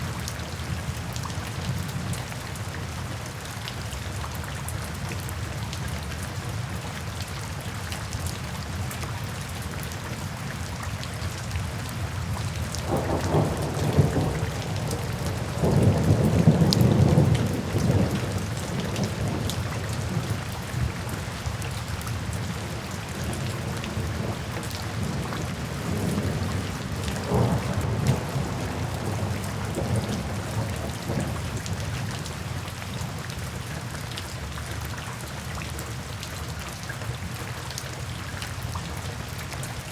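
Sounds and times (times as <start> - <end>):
rain falling: 0.0 - 39.9
thunder rolling: 12.8 - 20.9, 23.6 - 31.4.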